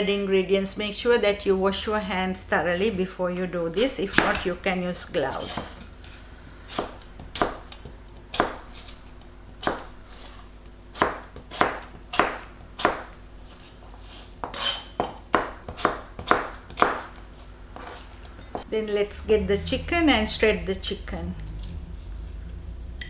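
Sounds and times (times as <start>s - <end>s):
knife chopping on cutting board: 5.3s - 18.6s.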